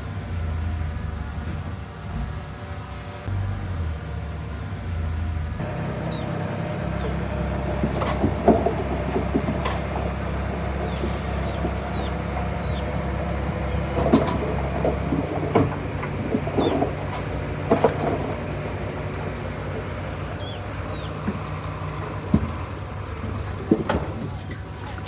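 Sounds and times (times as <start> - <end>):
bulldozer diesel engine: 0.0 - 25.0
metallic clanks and knocks: 5.6 - 22.8.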